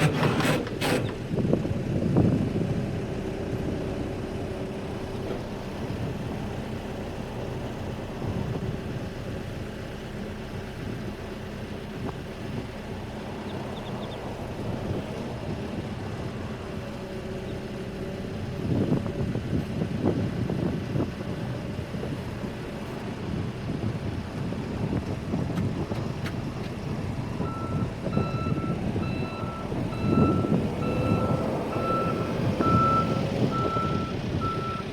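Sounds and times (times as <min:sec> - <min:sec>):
diesel engine running: 0:00.0 - 0:34.9
reversing alarm beeping: 0:27.4 - 0:34.9.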